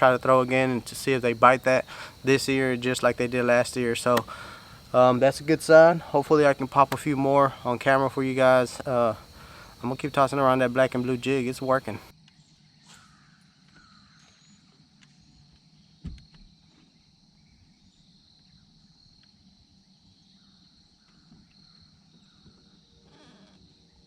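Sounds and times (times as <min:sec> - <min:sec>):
dull knock: 0:16.0 - 0:16.4.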